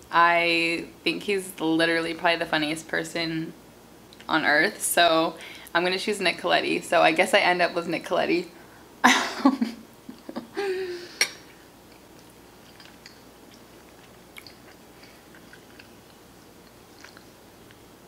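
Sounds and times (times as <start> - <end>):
person chewing: 11.2 - 17.9.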